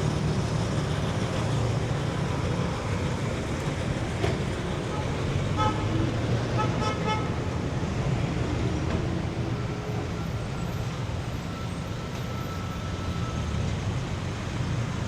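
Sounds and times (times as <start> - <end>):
vehicle engines running: 0.0 - 15.0
short car horn beeps: 4.8 - 7.4.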